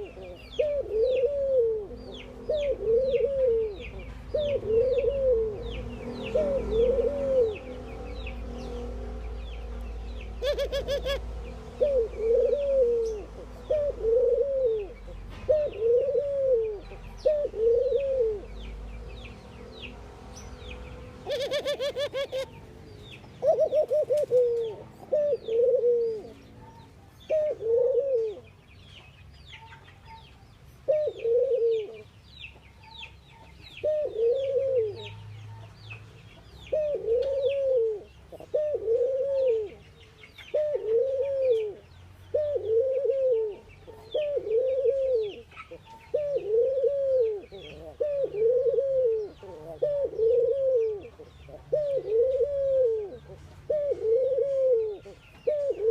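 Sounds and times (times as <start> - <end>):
doves cooing: 0.0 - 18.8, 21.1 - 22.7, 23.3 - 28.6, 30.8 - 32.1, 33.8 - 35.6, 36.6 - 55.9.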